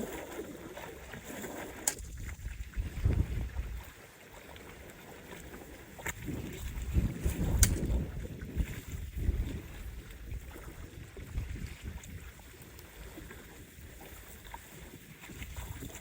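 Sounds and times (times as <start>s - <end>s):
lake water splashing on shore: 0.0s - 16.0s
wind buffeting microphone: 2.0s - 3.9s, 6.0s - 14.1s, 15.0s - 16.0s.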